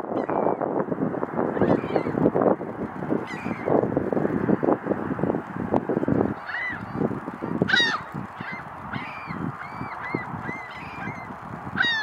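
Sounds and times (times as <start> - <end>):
wind: 0.0 - 12.0
bird honking calls: 7.7 - 11.0, 11.8 - 12.0.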